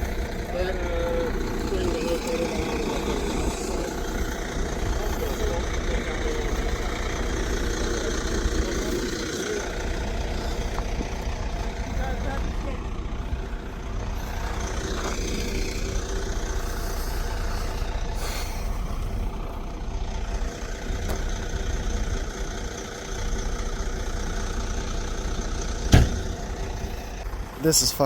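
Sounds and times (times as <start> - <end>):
truck engine running: 0.0 - 28.0
sharp bang: 25.9 - 26.4.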